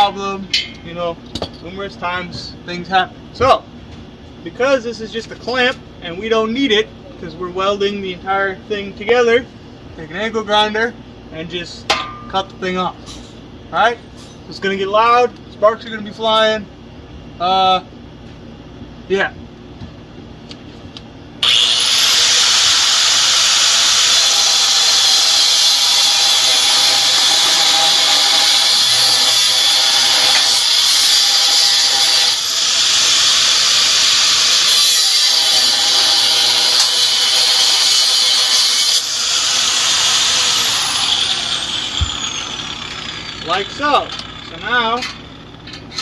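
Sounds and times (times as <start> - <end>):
angle grinder cutting metal: 21.4 - 46.0.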